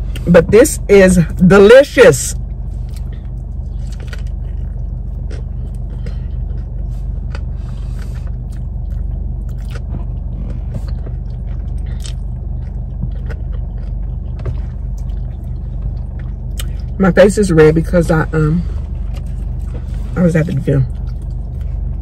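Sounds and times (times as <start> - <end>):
low cabin hum: 0.0 - 22.0
person chewing with wet smacks: 2.7 - 17.0, 20.9 - 22.0.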